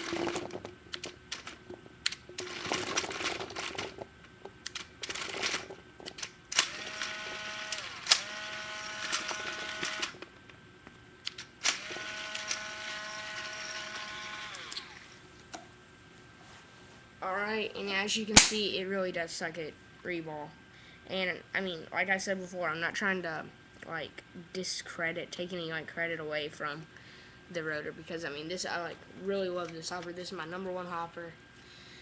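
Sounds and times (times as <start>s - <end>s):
motor whirring: 6.5s - 10.2s, 11.6s - 15.2s.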